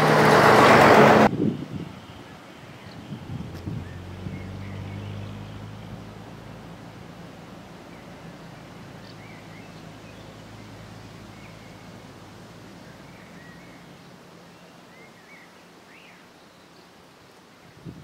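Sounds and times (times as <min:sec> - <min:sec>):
low steady engine hum: 0:00.0 - 0:16.1
small birds chirping: 0:07.8 - 0:17.0.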